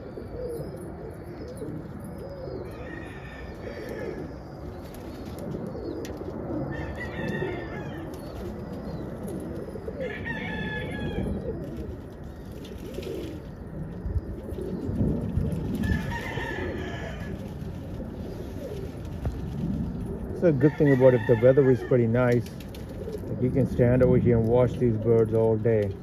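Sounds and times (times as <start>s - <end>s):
pigeons cooing: 0.0s - 26.0s
rooster crowing: 2.6s - 4.2s, 6.7s - 8.1s, 10.0s - 11.4s, 15.8s - 17.5s, 20.6s - 22.0s.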